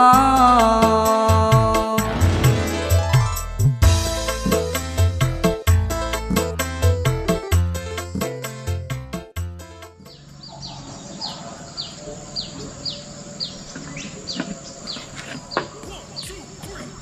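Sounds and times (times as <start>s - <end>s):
bird chirping: 10.0s - 17.0s
steady outdoor hiss: 10.0s - 17.0s.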